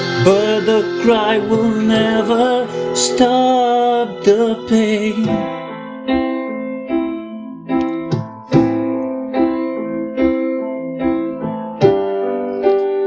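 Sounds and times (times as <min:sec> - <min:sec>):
person singing: 0:00.0 - 0:06.0
slow piano chords: 0:00.0 - 0:13.0.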